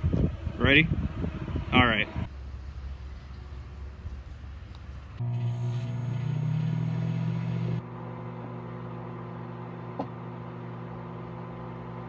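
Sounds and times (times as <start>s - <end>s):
microwave oven humming: 5.1s - 12.0s.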